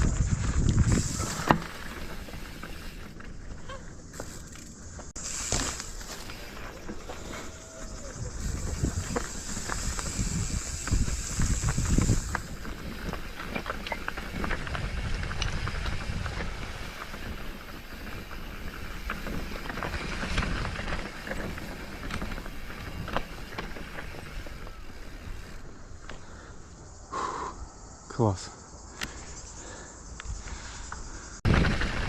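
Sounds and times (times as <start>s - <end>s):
wind buffeting microphone: 0.0s - 1.5s, 7.4s - 25.6s
footsteps on a trail: 0.0s - 26.3s
high insect buzz: 0.0s - 31.4s.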